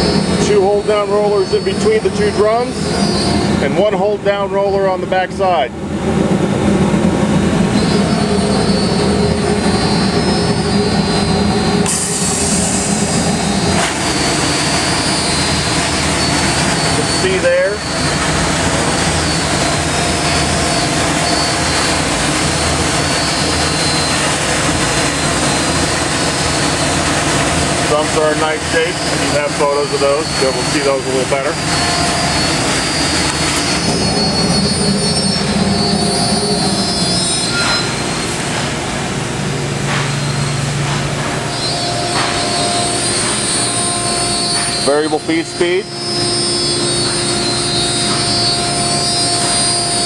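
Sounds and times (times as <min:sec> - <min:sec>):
workshop machinery roar: 0:00.0 - 0:50.0
low hum: 0:05.7 - 0:50.0
high steady tones: 0:07.0 - 0:50.0.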